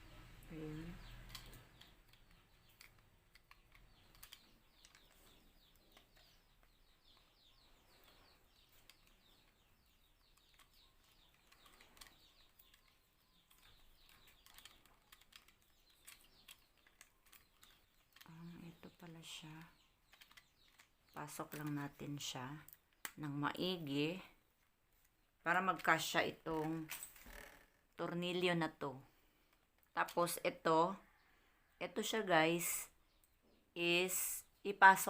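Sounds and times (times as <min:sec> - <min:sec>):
small plastic parts clicking: 0:01.0 - 0:19.0, 0:19.6 - 0:22.0.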